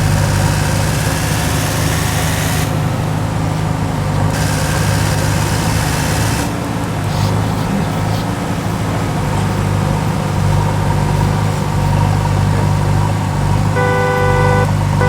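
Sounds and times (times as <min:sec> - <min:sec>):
vehicle engine running: 0:00.0 - 0:15.0
vehicle horn: 0:12.2 - 0:15.0.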